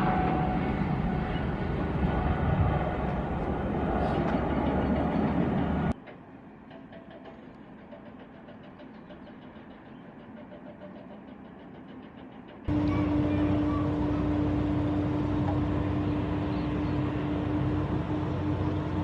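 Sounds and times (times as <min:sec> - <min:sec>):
jet airliner engine noise: 0:00.0 - 0:06.0, 0:12.7 - 0:19.0.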